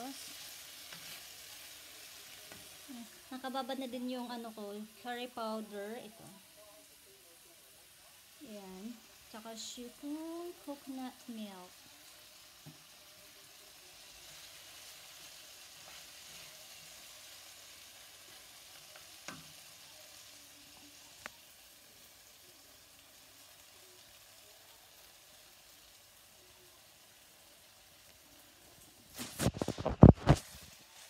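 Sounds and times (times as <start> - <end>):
food sizzling in a pan: 0.0 - 31.0
spoon knocking a pan: 19.2 - 19.6.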